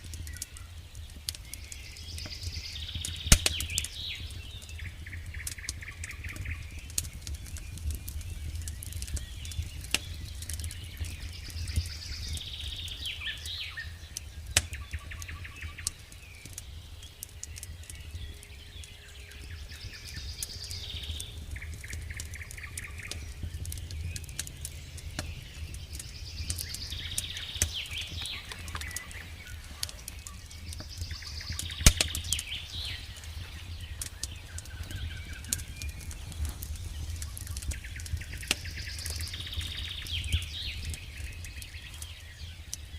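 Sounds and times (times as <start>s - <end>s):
campfire crackling: 0.0s - 42.9s
songbirds singing: 0.0s - 42.9s
low steady rumble: 18.3s - 41.0s.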